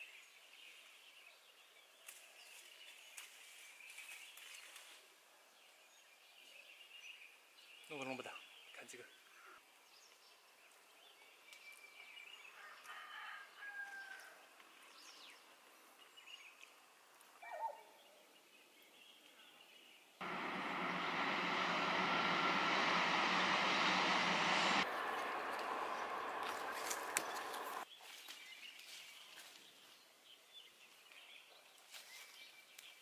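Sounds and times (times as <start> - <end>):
loud steady rushing noise: 20.2 - 27.8.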